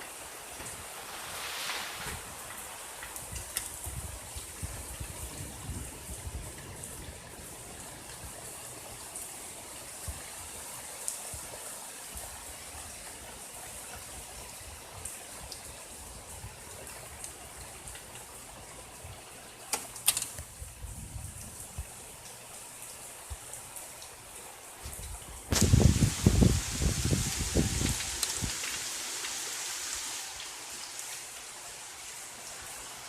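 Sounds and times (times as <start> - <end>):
heavy rain falling: 0.0 - 33.0
sharp raindrop taps: 2.0 - 5.2, 24.8 - 29.6.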